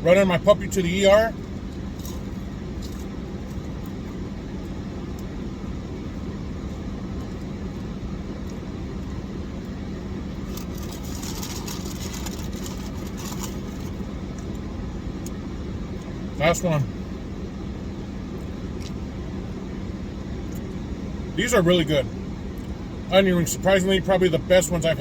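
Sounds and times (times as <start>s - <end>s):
car engine idling: 0.0s - 25.0s
crisp crackling: 10.4s - 14.0s.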